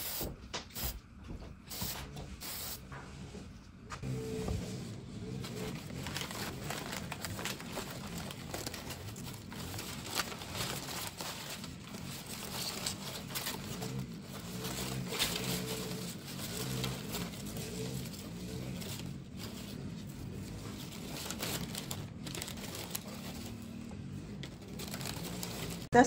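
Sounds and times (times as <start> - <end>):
tape and paper crinkling: 5.3 - 25.9.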